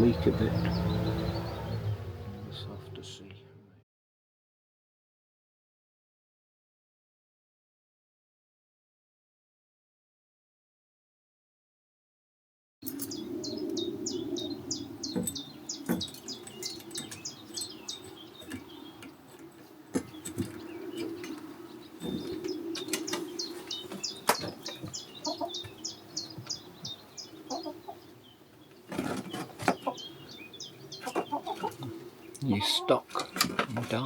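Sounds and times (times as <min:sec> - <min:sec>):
bird chirping rapidly: 0:00.0 - 0:03.0, 0:12.8 - 0:33.0
steady low hum: 0:00.0 - 0:03.8
wings fluttering and knocks: 0:15.1 - 0:25.0, 0:28.8 - 0:29.9.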